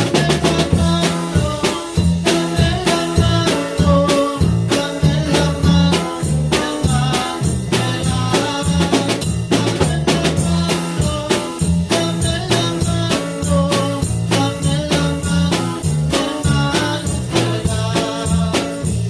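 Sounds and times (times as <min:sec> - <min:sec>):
band music: 0:00.0 - 0:19.0
bass line: 0:00.0 - 0:19.0
drum kit beat: 0:00.0 - 0:19.0.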